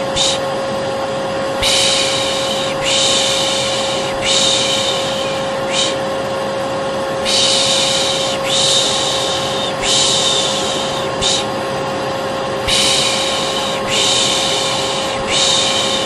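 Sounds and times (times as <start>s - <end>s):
person shushing: 0.0s - 0.5s, 1.6s - 6.0s, 7.2s - 11.6s, 12.6s - 16.0s
vacuum cleaner humming: 0.0s - 16.0s.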